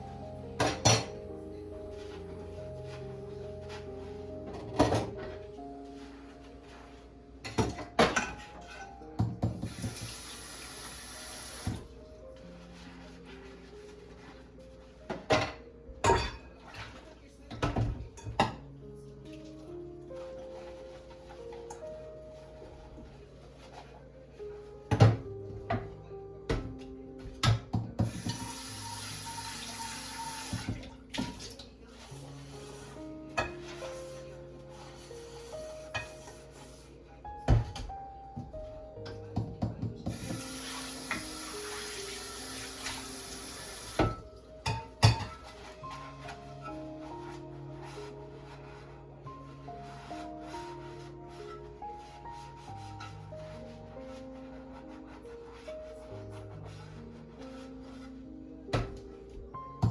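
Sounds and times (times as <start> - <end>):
soft music: 0.0 - 59.9
tap running into sink: 9.4 - 10.4, 28.0 - 31.6
kitchen tap running: 9.5 - 11.8, 28.0 - 31.5, 40.1 - 44.2.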